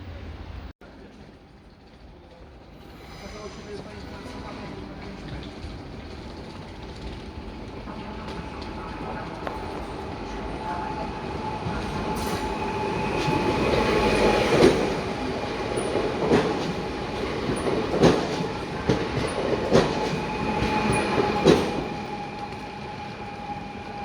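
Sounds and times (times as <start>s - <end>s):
train rumble with whine: 0.0s - 24.0s
train wheels clacking on rail joints: 1.0s - 24.0s.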